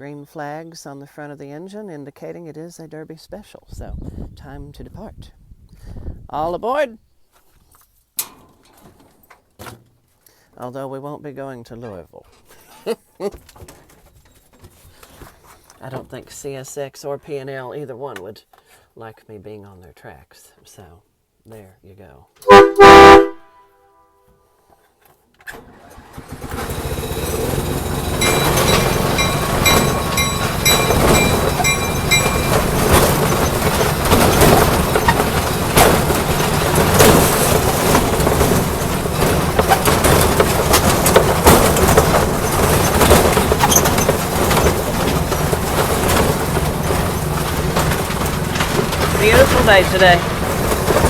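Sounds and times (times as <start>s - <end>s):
small train engine rumble: 25.7s - 51.0s
high ringing tones: 26.6s - 35.5s.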